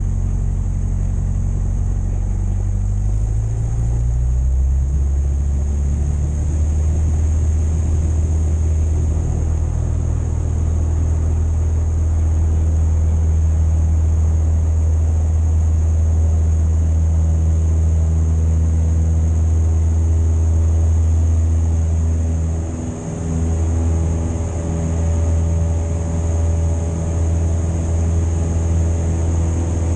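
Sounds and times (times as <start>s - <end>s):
propeller plane engine running: 0.0s - 29.9s.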